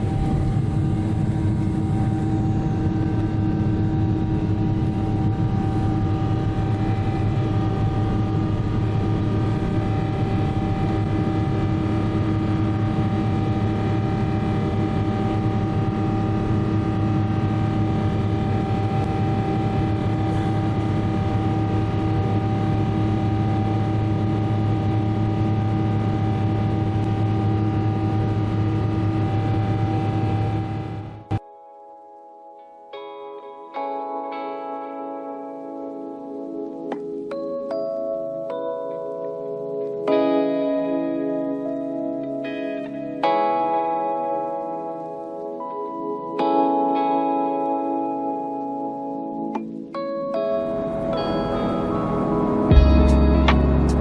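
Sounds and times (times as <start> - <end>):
constant humming tones: 0.0 - 31.4, 49.4 - 54.0.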